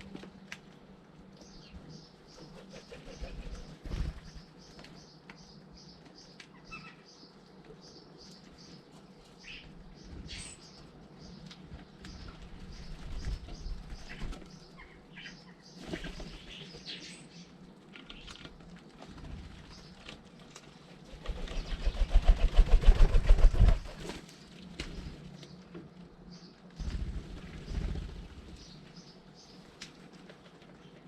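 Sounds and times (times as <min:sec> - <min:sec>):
birds chirping: 0:00.1 - 0:23.9, 0:24.9 - 0:29.7
bird wings flapping: 0:02.4 - 0:04.4, 0:21.0 - 0:25.0, 0:26.8 - 0:28.5.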